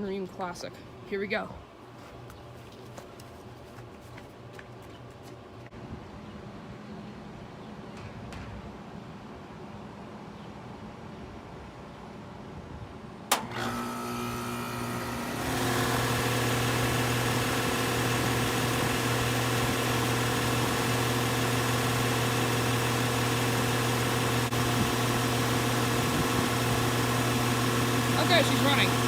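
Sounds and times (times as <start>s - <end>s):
air conditioner unit running: 13.3s - 29.0s.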